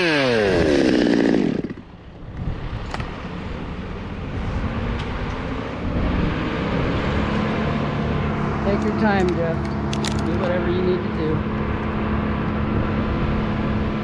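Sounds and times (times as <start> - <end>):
chainsaw engine winding down: 0.0 - 1.9.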